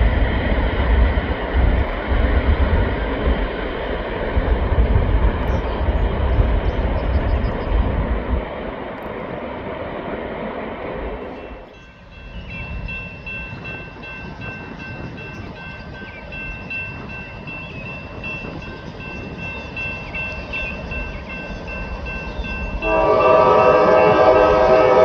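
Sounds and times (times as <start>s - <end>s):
freight train rumbling past: 0.0s - 25.0s.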